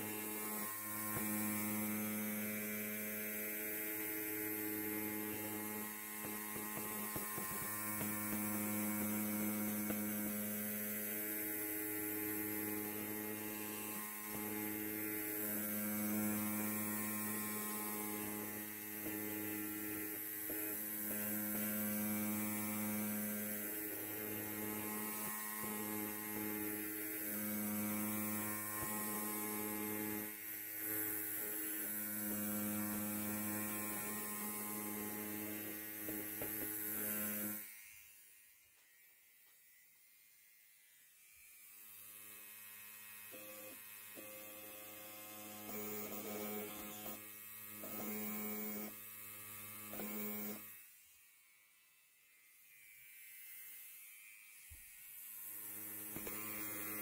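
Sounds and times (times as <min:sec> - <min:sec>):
electric hair clipper buzzing: 0:00.0 - 0:57.0.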